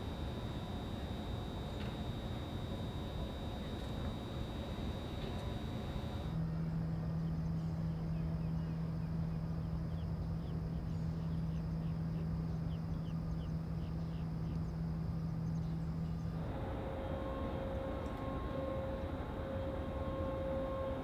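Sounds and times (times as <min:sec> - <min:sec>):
machine humming: 0:00.0 - 0:06.4.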